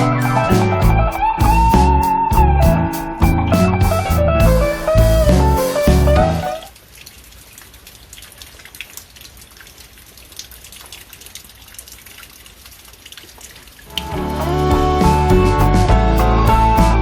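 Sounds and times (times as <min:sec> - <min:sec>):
background guitar music: 0:00.0 - 0:06.7, 0:13.9 - 0:17.0
rain hissing: 0:00.0 - 0:07.6.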